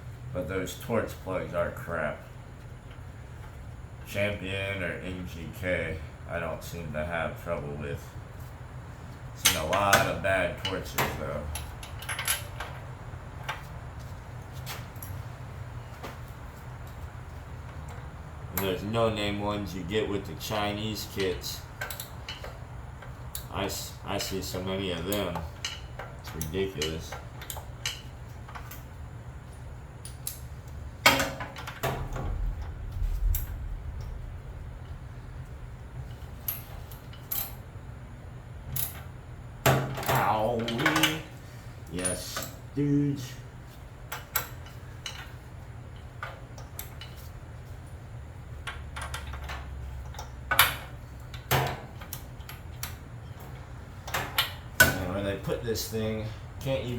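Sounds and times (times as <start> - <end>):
steady low hum: 0.0 - 56.9
metal tools clinking and knocking: 9.4 - 12.8, 39.7 - 41.3
metal clanks: 31.0 - 35.0.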